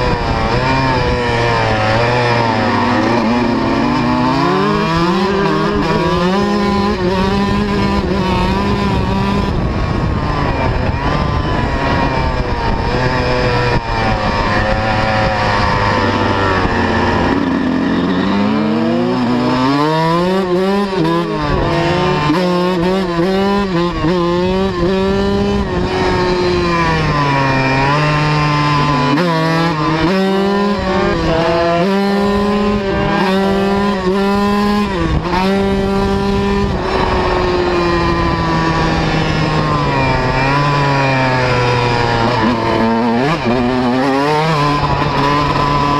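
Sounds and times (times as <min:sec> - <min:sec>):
motocross bike engine revving: 0:00.0 - 0:45.9.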